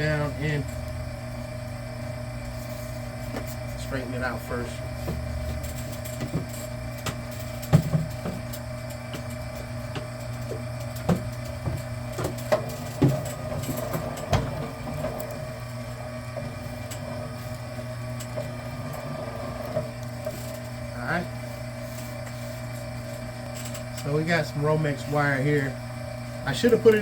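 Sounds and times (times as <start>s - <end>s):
wire stripping machine motor hum: 0.0s - 27.0s
cable knocking through rollers: 5.0s - 15.6s.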